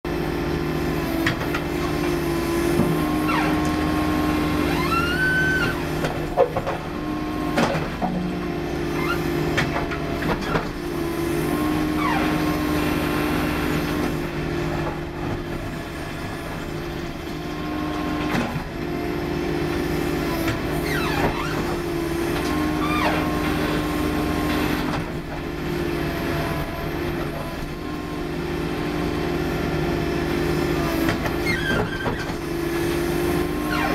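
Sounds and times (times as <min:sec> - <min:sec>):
skid steer running under load: 0:00.1 - 0:33.9
short rising squeals: 0:03.2 - 0:06.0.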